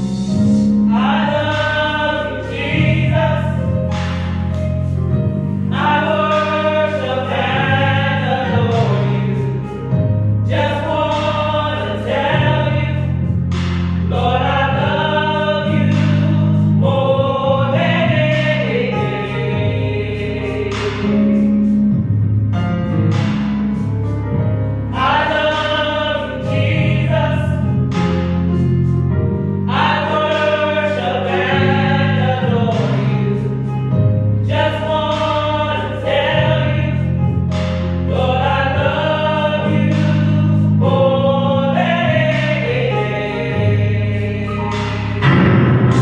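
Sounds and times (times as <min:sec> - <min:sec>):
band with bass notes: 0:00.0 - 0:46.0
gospel choir singing: 0:00.0 - 0:46.0.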